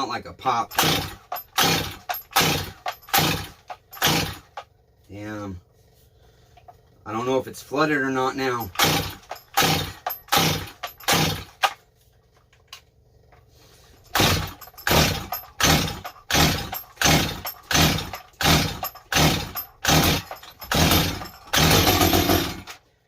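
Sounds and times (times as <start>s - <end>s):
chainsaw engine turning over: 0.5s - 4.7s, 8.6s - 11.8s, 14.0s - 22.9s
chainsaw starter cord pulls: 0.5s - 4.7s, 8.6s - 11.8s, 14.1s - 22.8s.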